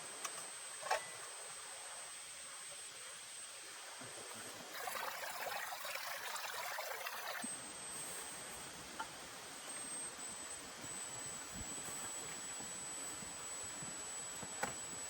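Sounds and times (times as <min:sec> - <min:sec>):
rush of pouring water: 0:04.7 - 0:07.4.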